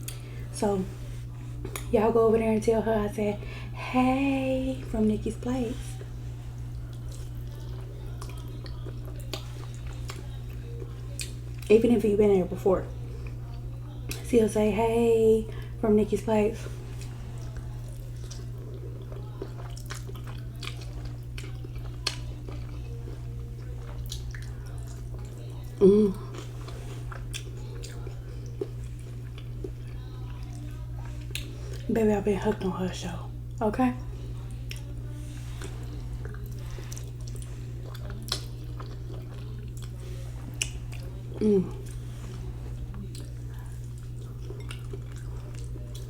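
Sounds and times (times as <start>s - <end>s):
steady low hum: 0.0s - 46.0s
person chewing wetly: 1.5s - 1.9s, 5.9s - 11.7s, 16.7s - 31.9s, 33.5s - 46.0s.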